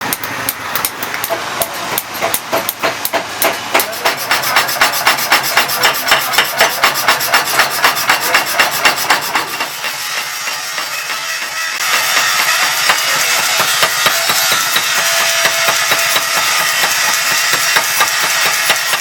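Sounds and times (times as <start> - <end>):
hammer striking metal: 0.0 - 19.0.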